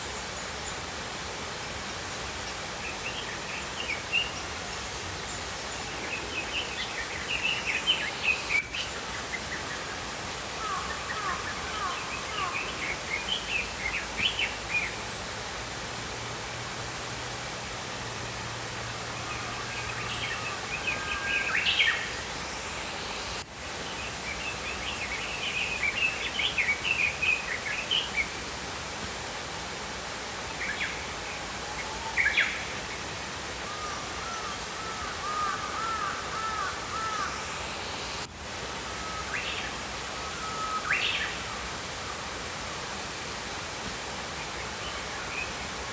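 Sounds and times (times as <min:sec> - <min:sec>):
flowing stream: 0:00.0 - 0:45.9.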